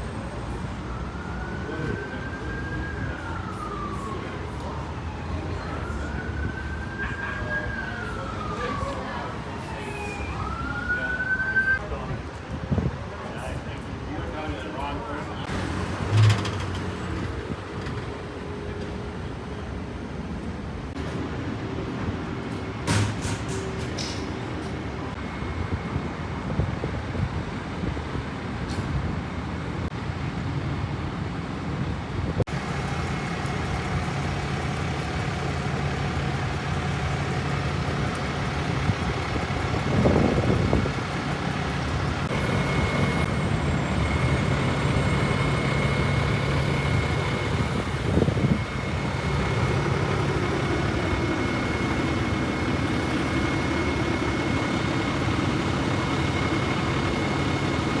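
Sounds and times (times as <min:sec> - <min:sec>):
diesel engine idling: 0:15.4 - 0:21.0, 0:32.5 - 0:58.0.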